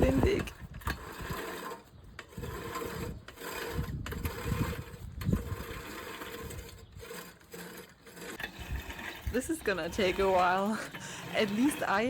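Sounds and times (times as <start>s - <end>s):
wind buffeting microphone: 0.0s - 7.4s, 8.4s - 12.0s
lawn mower running: 4.2s - 12.0s.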